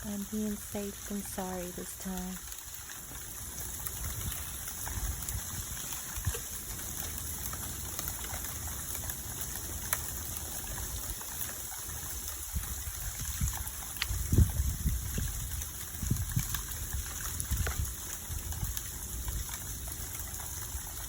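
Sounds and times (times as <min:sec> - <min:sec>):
freezing rain falling: 0:00.0 - 0:21.0
faint ticks: 0:12.6 - 0:14.5.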